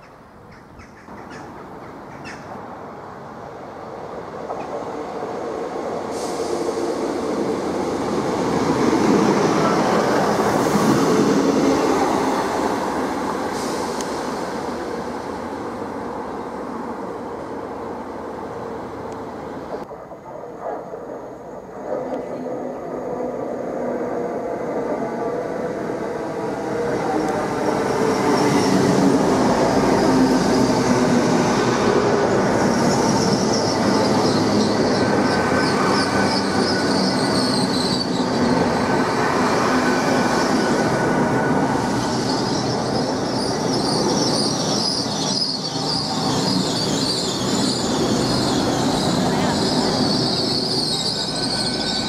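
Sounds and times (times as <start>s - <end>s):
diesel train arriving: 1.6s - 52.0s
high brake squeal: 32.8s - 39.4s, 41.9s - 52.0s.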